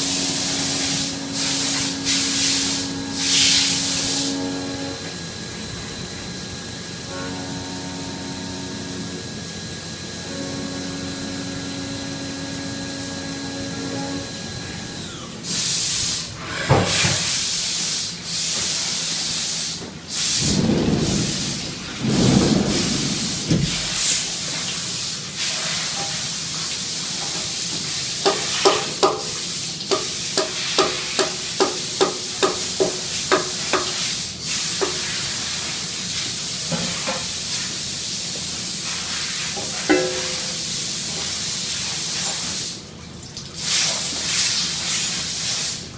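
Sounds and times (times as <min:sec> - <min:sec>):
hissing air blasts: 0:00.0 - 0:04.4, 0:15.5 - 0:25.8.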